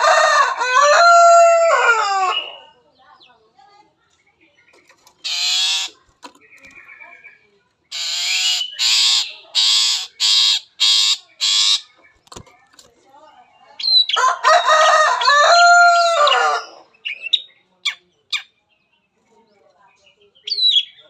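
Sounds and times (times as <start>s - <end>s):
bird singing mimicking song: 4.2s - 14.2s, 16.2s - 21.0s.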